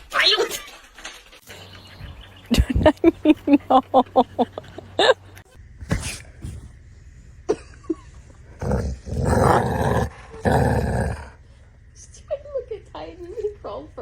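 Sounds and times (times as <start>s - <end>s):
dog growling: 5.8s - 6.8s, 8.4s - 11.7s.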